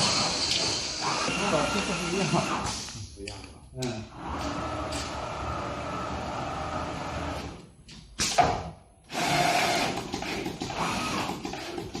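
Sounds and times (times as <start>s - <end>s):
cutting machine whirring: 0.0s - 2.6s.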